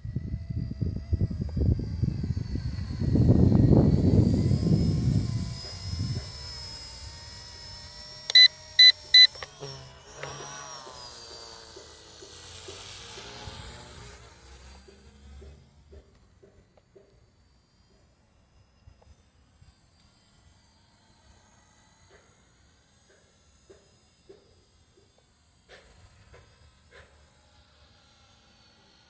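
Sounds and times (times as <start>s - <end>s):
helicopter rotor fluttering: 0.0s - 15.4s
high motor whine: 0.0s - 15.5s
short electronic beeps: 8.3s - 9.4s.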